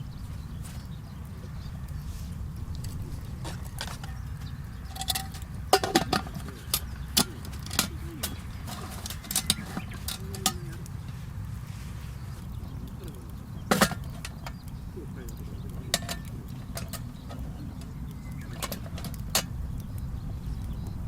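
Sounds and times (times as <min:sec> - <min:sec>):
steady low rumble: 0:00.0 - 0:21.0
cooking utensils clicking and knocking: 0:02.9 - 0:11.2, 0:12.4 - 0:19.8.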